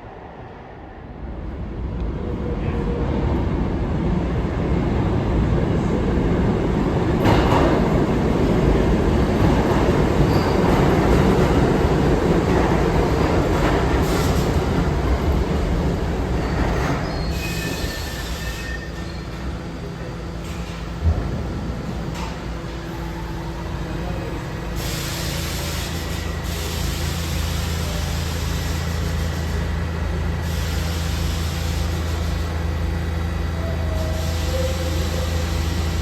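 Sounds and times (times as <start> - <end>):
subway train rumbling on rails: 0.0 - 36.0
train wheel squeal: 10.2 - 10.8, 16.5 - 19.5, 33.6 - 36.0.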